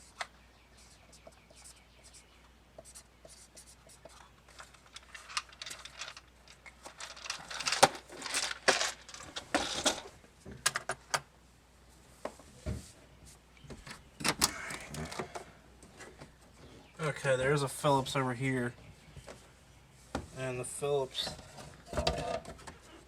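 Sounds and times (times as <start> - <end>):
metal parts and tools clinking: 4.8 - 10.1.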